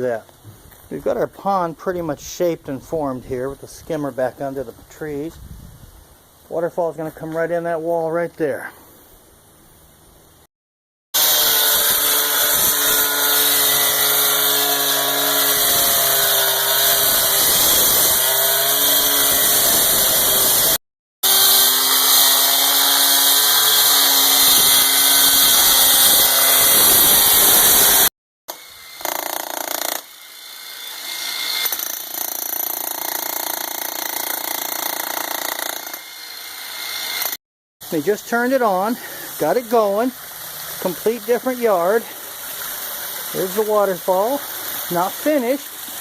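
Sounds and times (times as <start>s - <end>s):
power tool cutting: 11.2s - 37.4s.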